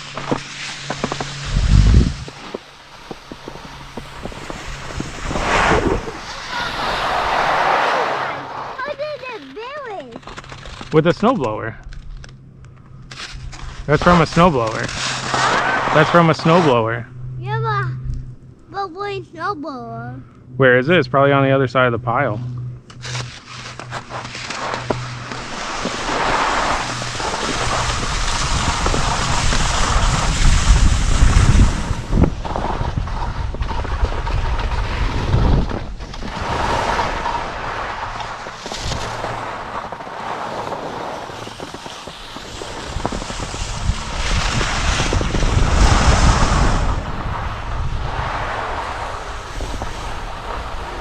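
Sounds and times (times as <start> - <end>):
skis hissing over snow: 0.0 - 10.1, 13.1 - 16.8, 23.1 - 51.0
wind buffeting microphone: 1.3 - 2.4, 3.1 - 7.6, 24.9 - 51.0.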